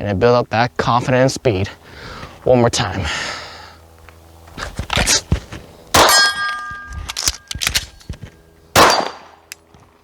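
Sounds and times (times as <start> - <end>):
pistol shots: 5.9 - 7.8, 8.7 - 9.4
ringing metallic clang: 6.0 - 7.6
clicks and knocks of pistol reload: 6.5 - 8.2.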